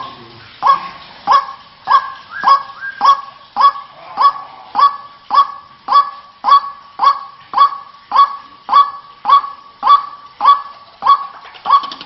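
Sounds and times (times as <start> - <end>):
bird croaking calls: 0.0 - 12.0.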